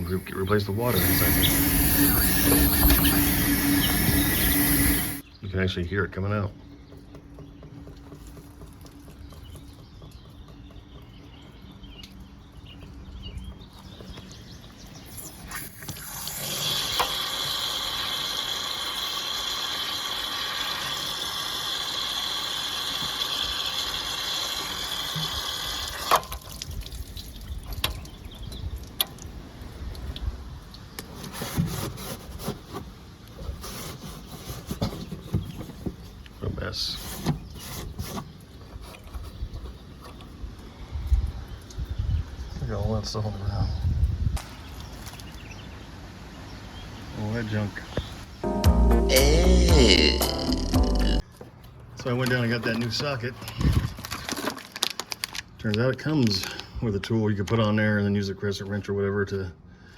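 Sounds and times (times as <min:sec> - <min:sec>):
water rushing from relief valve: 0:00.0 - 0:05.2, 0:15.4 - 0:27.4
valve click: 0:00.2 - 0:05.2.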